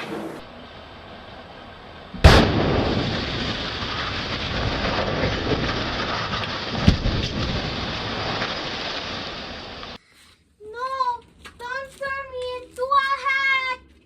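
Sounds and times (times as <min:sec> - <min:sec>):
loud bang: 0:00.0 - 0:09.7
sharp crack: 0:00.0 - 0:10.0
building collapsing with falling debris: 0:00.5 - 0:10.0.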